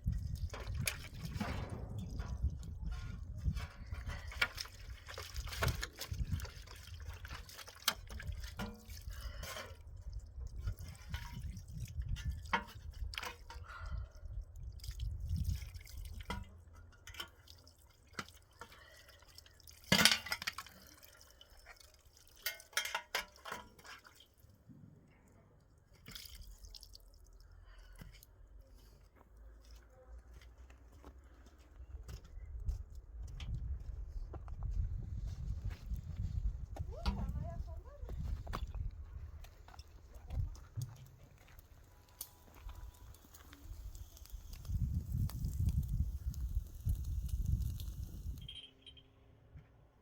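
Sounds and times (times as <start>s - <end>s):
water splashing and dripping: 0.0s - 24.6s, 25.8s - 28.3s.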